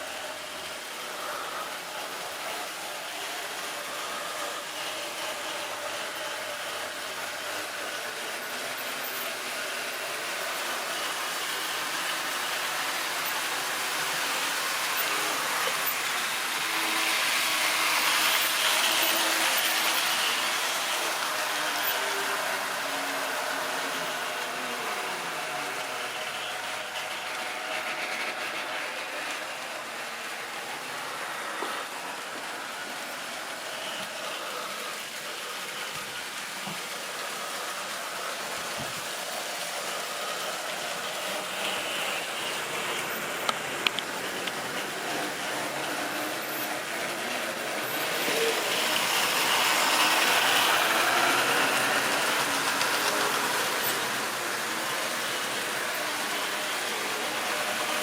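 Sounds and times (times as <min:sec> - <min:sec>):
model train wheels rattling: 0:33.7 - 0:58.0.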